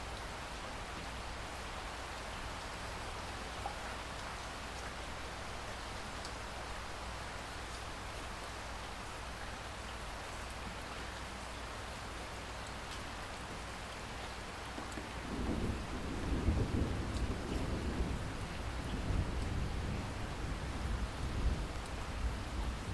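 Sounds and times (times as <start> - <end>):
distant thunder rumble: 15.0 - 22.9.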